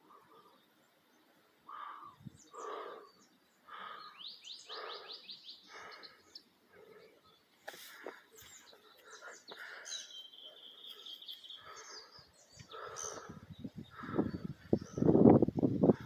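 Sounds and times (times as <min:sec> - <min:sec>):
high bird chirps: 0:07.7 - 0:13.2.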